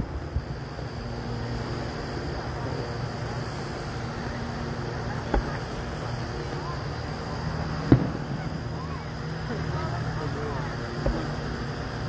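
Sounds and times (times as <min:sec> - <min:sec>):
distant firework boom: 0:05.3 - 0:05.8, 0:07.8 - 0:08.8, 0:11.0 - 0:11.5.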